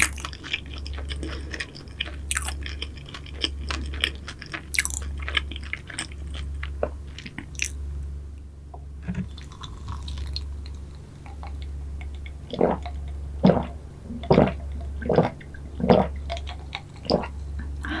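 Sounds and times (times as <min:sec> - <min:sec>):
chewing soft pastry: 0:00.0 - 0:07.8, 0:09.2 - 0:17.8
steady low hum: 0:00.0 - 0:18.0
wet mouth clicks: 0:11.2 - 0:17.4.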